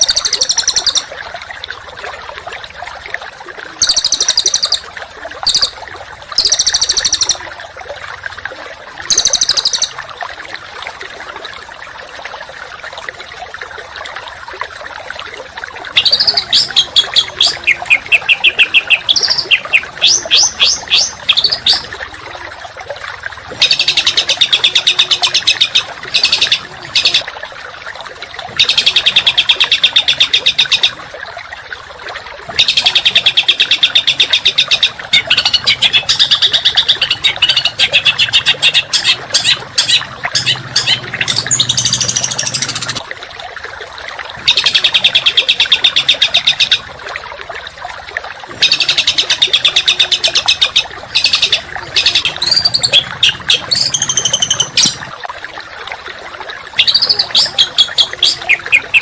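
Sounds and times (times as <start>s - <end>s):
songbird buzzy calls: 0.0s - 1.1s, 5.5s - 5.8s, 16.0s - 21.9s, 23.5s - 27.2s, 32.6s - 43.0s, 48.6s - 55.1s, 56.8s - 59.0s.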